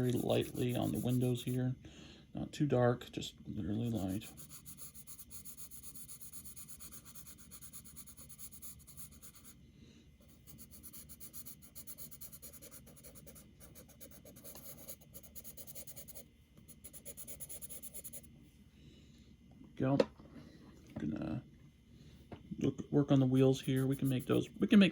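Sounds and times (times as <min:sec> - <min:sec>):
pencil shading on paper: 0:00.0 - 0:01.6, 0:03.8 - 0:09.6, 0:10.2 - 0:18.3, 0:23.5 - 0:24.5.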